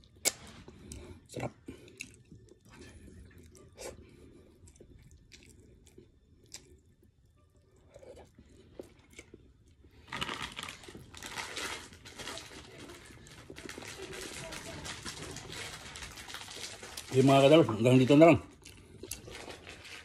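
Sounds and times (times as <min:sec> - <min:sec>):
person chewing: 0:00.0 - 0:12.0, 0:18.5 - 0:20.0.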